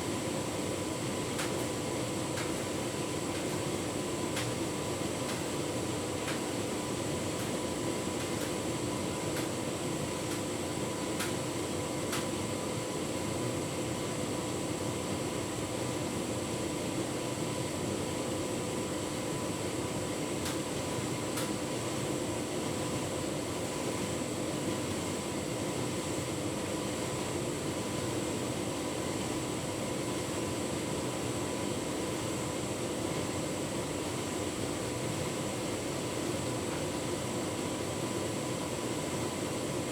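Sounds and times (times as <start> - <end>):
light ticks in dryer drum: 1.1 - 12.4, 20.3 - 21.8, 36.4 - 37.1.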